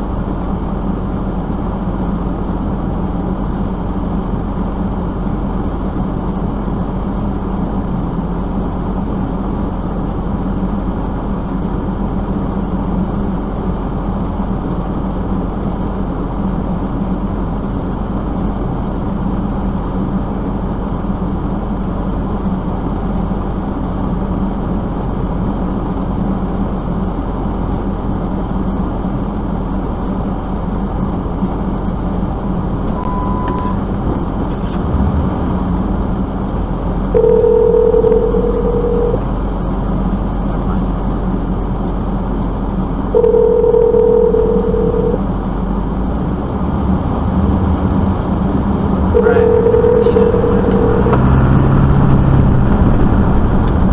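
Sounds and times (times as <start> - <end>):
vehicle running drone: 0.0 - 53.9
short beep: 32.9 - 33.8, 37.2 - 39.2, 43.2 - 45.2, 49.2 - 51.3.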